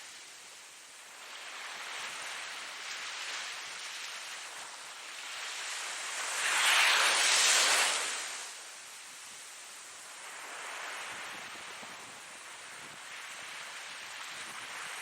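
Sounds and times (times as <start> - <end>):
ocean waves washing ashore: 0.0 - 15.0.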